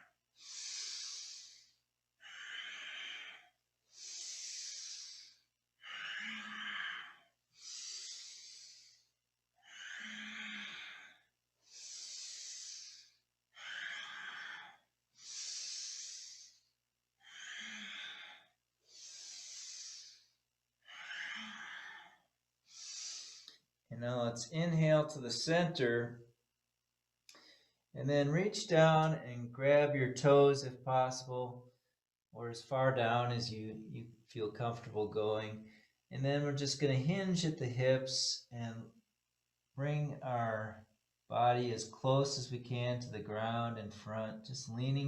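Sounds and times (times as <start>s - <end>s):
person breathing slowly: 0.4s - 23.6s, 27.3s - 27.8s.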